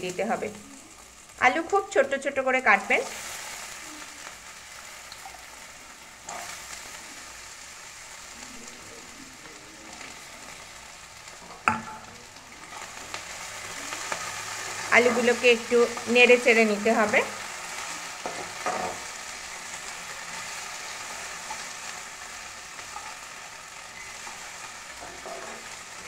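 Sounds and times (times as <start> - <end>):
potatoes sizzling in oil: 0.0 - 26.0
spatula knocking on pan: 11.7 - 12.1.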